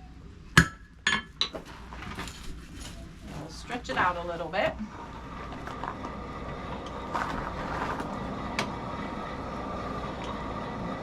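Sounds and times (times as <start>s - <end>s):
forge blower whirring: 3.2s - 11.0s.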